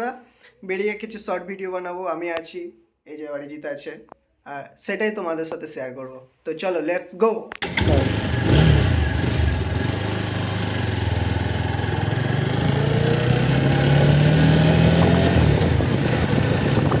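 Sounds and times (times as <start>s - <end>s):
motorcycle engine accelerating: 7.6s - 17.0s.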